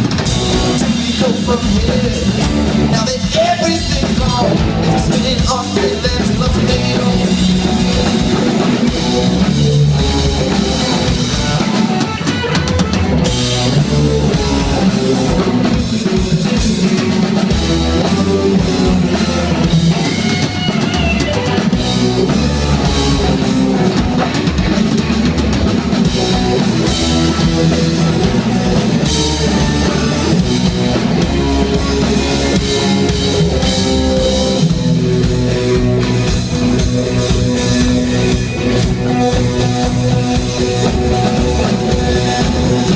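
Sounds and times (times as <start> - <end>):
bass guitar: 0.0 - 42.9
drum kit: 0.0 - 42.9
electric guitar: 0.0 - 42.9.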